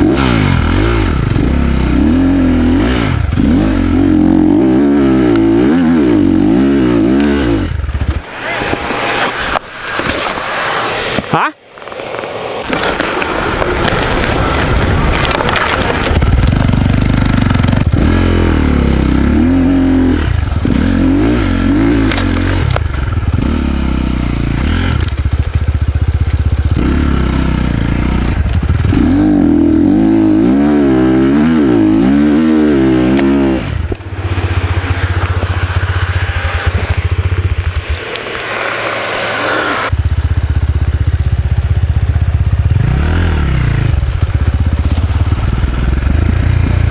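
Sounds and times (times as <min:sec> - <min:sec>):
dirt bike engine revving: 0:00.0 - 0:11.2, 0:12.6 - 0:46.9
rough crunching noise: 0:00.0 - 0:46.9.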